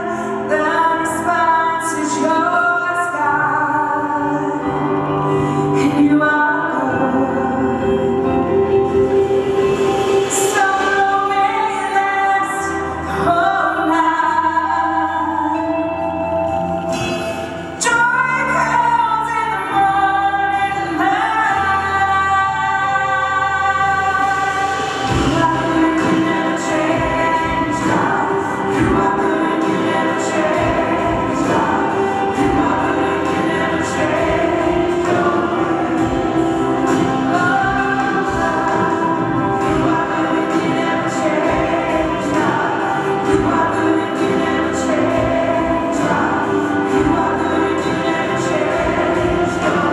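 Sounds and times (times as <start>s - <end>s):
woman singing: 0.0s - 49.9s
instrumental accompaniment: 4.1s - 49.9s.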